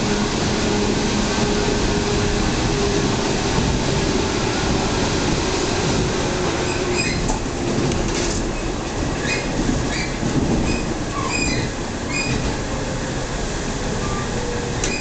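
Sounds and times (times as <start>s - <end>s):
train wheels rumbling on rail: 0.0s - 15.0s
high squeaks: 6.6s - 7.3s, 9.2s - 12.4s.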